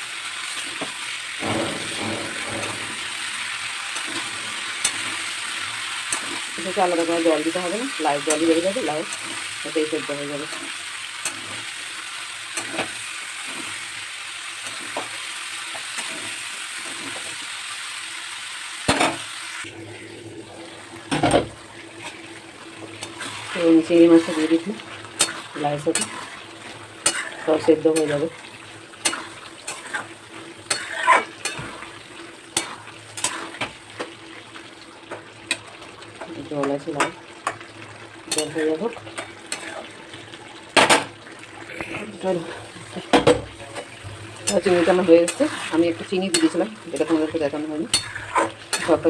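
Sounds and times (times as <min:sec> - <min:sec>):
food sizzling in oil: 0:00.0 - 0:49.0
spatula knocking pan: 0:00.8 - 0:05.2, 0:43.0 - 0:49.0
utensil scraping a pan: 0:01.4 - 0:09.4, 0:21.1 - 0:33.8, 0:38.3 - 0:40.2, 0:42.2 - 0:49.0.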